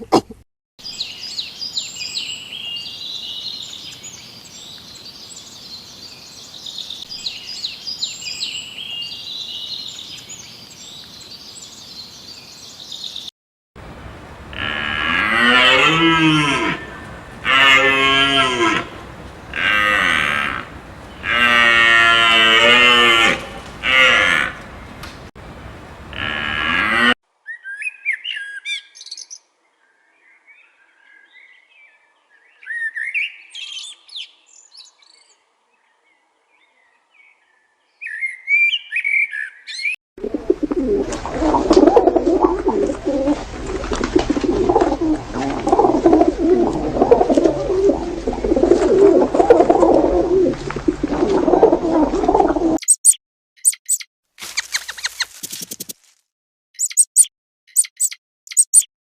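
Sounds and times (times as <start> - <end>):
birds chirping: 0.8 - 13.3, 13.9 - 21.8, 22.7 - 26.5, 39.0 - 54.0
flock of birds calling: 14.2 - 21.8, 22.6 - 25.3, 40.2 - 52.8.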